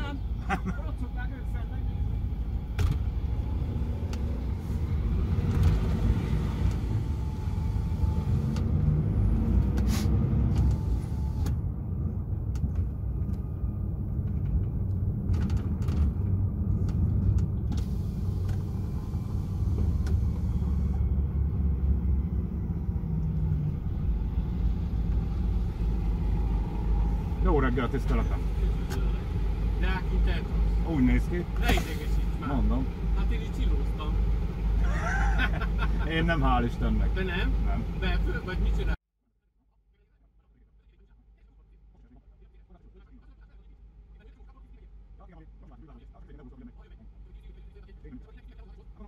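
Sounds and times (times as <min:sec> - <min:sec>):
truck diesel engine idling: 0:17.9 - 0:39.0.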